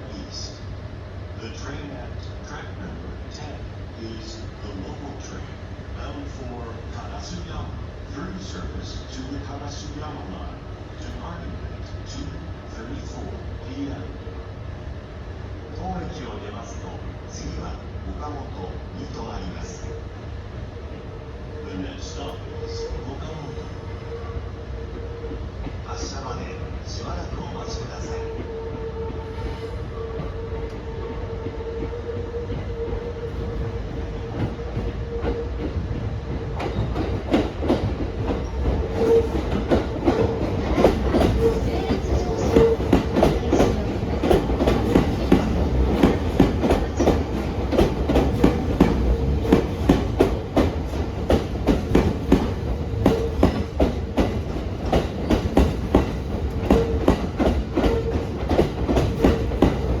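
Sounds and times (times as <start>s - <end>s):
train wheels clacking over rail joints: 34.3s - 60.0s.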